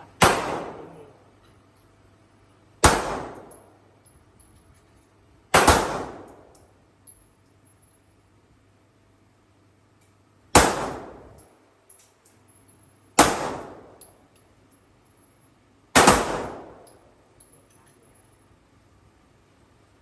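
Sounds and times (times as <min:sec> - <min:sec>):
gunshots with echo: 0:00.2 - 0:00.9.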